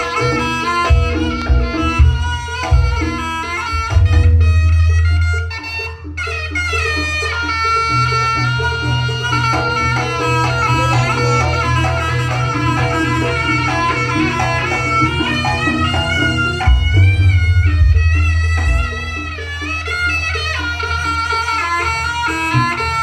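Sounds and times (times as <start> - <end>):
drums: 0.0 - 5.5, 9.7 - 20.3
heavy deep bass: 0.0 - 5.6, 10.4 - 19.8
reedy wind instrument melody: 0.0 - 23.0.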